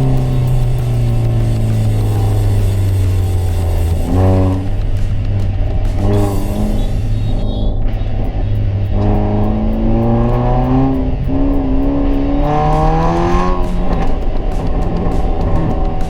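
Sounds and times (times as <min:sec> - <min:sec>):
car exhaust accelerating: 0:00.0 - 0:16.0.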